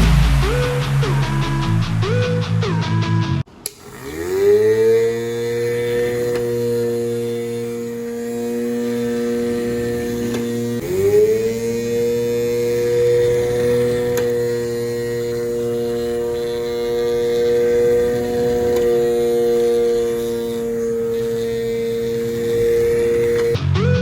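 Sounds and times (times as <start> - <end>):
small motor humming: 3.5 - 23.6.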